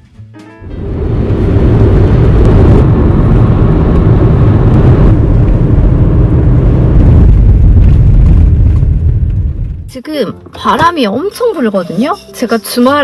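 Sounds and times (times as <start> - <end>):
strong wind buffeting microphone: 0.6 - 9.9.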